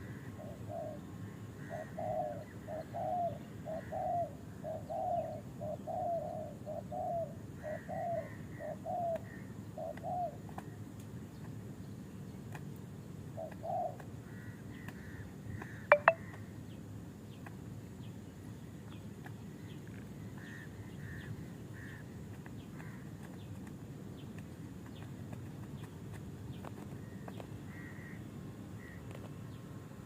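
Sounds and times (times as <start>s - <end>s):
small birds chirping: 0.0s - 29.8s
dove cooing: 0.2s - 1.0s, 1.6s - 10.4s, 13.4s - 14.0s.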